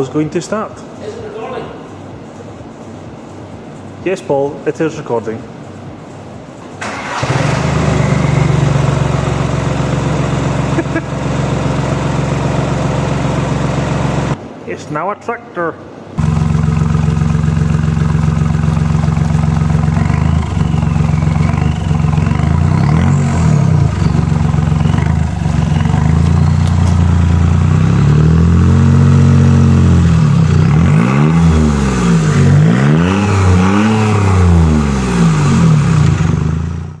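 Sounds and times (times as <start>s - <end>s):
car engine idling and revving: 6.8s - 14.4s, 16.2s - 37.0s.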